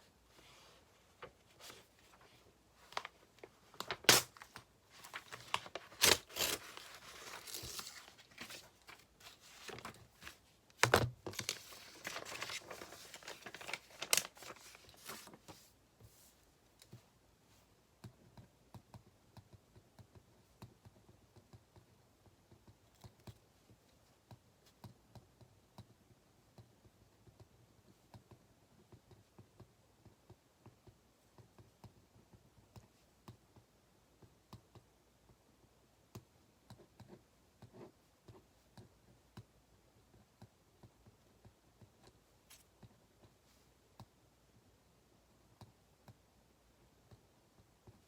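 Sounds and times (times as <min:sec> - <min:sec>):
small clicks and taps at a desk: 0:16.7 - 0:17.1, 0:17.9 - 0:44.7, 0:45.5 - 0:48.0.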